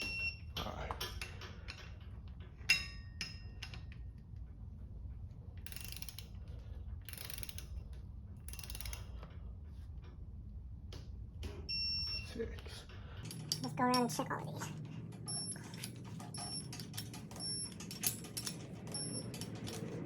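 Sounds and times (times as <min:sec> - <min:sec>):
torque wrench ratcheting: 0:05.6 - 0:06.3, 0:07.1 - 0:07.8, 0:08.5 - 0:09.1
wrench click: 0:08.5 - 0:09.0.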